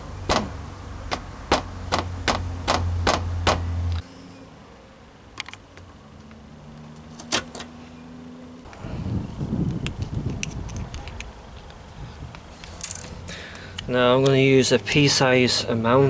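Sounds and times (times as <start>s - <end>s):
taps on sheet metal: 1.1s - 3.6s.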